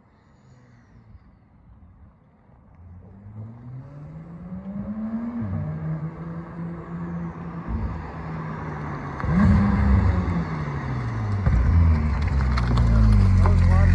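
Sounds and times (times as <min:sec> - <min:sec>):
sports car accelerating past: 0:03.0 - 0:13.9.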